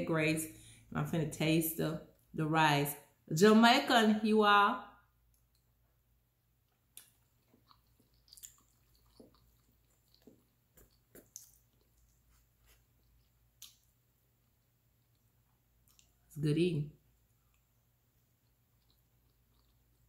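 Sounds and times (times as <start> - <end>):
faint chewing: 5.3 - 5.9, 6.5 - 16.3, 17.2 - 20.0
soft mouth clicks: 7.0 - 12.2, 13.0 - 13.9, 15.9 - 16.2.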